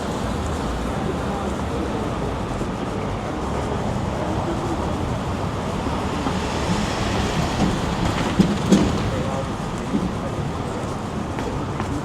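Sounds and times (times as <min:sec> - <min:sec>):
rumble of traffic: 0:00.0 - 0:12.0.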